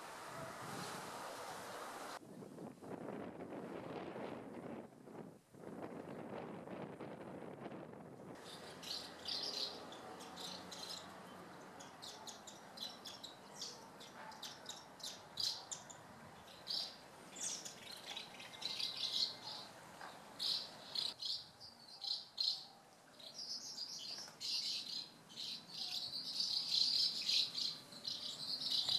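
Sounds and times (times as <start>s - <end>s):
house martins twittering: 8.4s - 21.4s.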